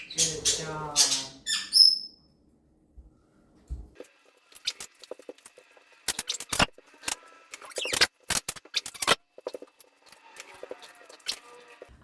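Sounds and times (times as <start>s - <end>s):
parrot squeaks: 0.0s - 2.3s.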